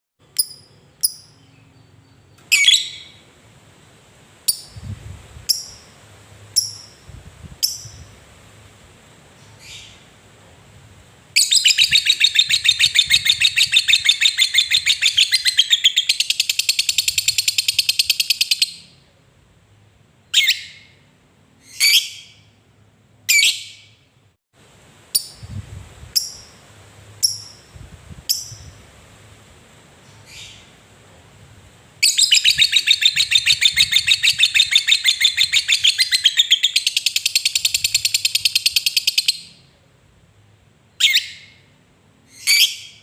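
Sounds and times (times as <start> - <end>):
lovebird chattering trill: 0.3 - 3.2, 5.5 - 6.0, 6.6 - 8.1, 11.4 - 18.9, 32.0 - 39.6.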